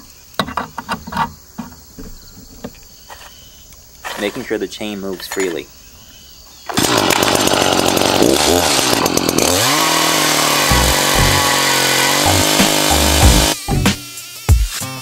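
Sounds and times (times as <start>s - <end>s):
chainsaw cutting log: 6.7s - 14.9s.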